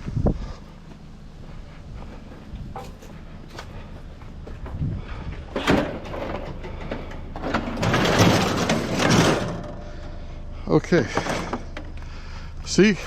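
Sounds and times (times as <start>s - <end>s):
metal scraping and rattling: 2.6s - 3.9s, 4.5s - 11.9s.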